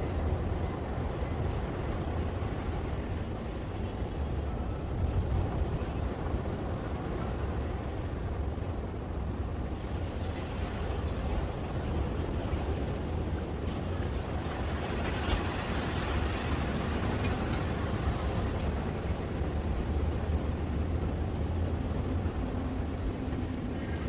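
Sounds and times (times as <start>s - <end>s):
rail bike rolling on rails: 0.0s - 24.0s.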